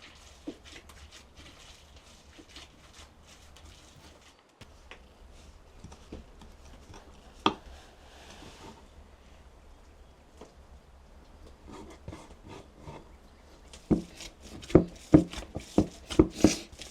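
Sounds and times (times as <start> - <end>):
soft taps and rustles: 3.6 - 8.9, 13.7 - 16.9.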